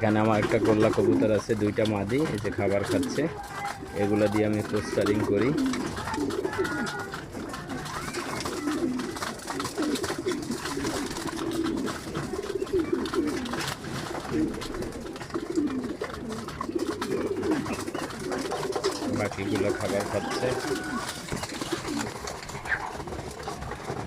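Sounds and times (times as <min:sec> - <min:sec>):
birds pecking at feed: 0:00.0 - 0:24.0
pigeons cooing: 0:00.0 - 0:24.0.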